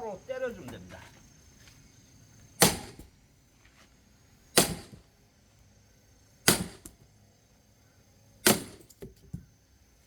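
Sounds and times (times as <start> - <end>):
sledgehammer striking log: 2.6 - 3.1, 4.6 - 5.0, 6.4 - 7.0, 8.4 - 9.1.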